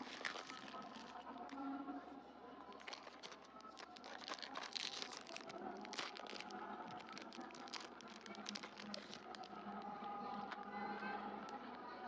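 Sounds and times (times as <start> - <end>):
plastic packaging crinkling: 0.0 - 1.6, 2.7 - 10.7.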